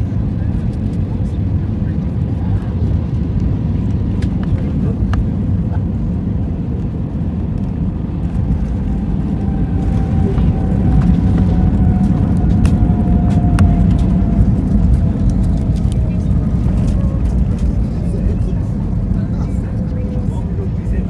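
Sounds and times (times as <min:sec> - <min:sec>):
aircraft engines rumbling: 0:00.0 - 0:21.0.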